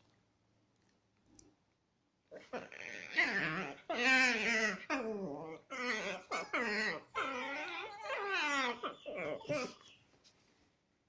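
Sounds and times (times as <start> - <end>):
dogs making pitched calls: 2.3 - 9.9.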